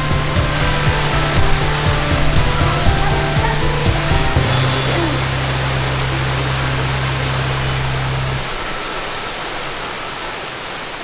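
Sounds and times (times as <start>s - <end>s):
deep low hum: 0.0s - 8.6s
waterfall rushing: 0.0s - 11.0s.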